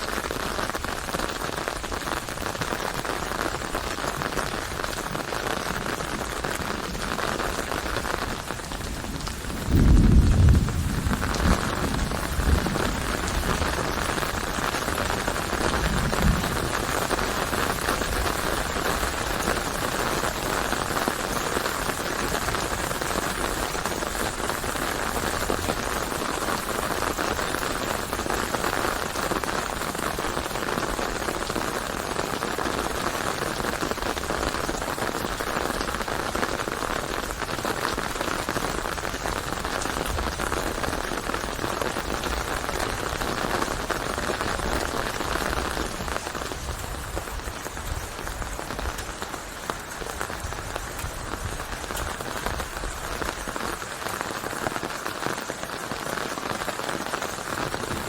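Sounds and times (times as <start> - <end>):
rain pattering: 0.0 - 58.0.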